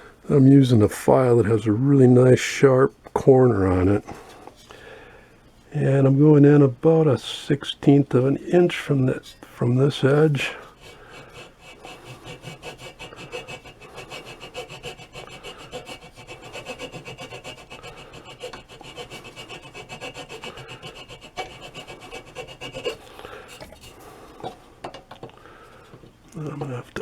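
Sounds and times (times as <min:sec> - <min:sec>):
hand file rasping on wood: 0:10.0 - 0:24.6.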